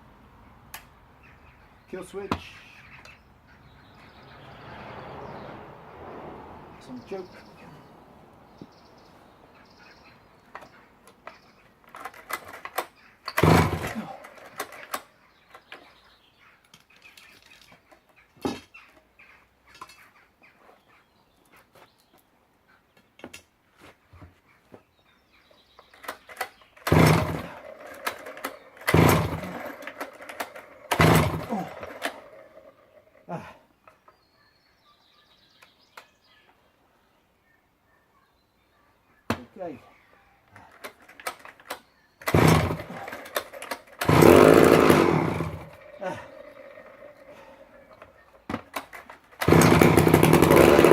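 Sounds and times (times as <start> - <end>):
chainsaw pull-start bursts: 12.0 - 15.1, 26.0 - 32.5, 42.2 - 46.2, 48.7 - 50.9.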